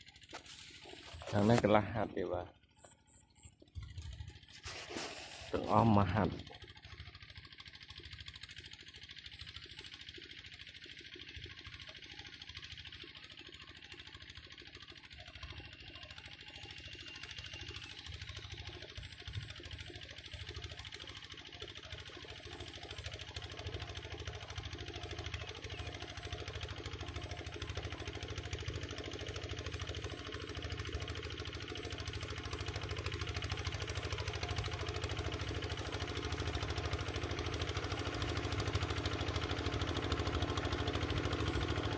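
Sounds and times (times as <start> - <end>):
diesel tractor engine knocking: 5.7 - 41.9.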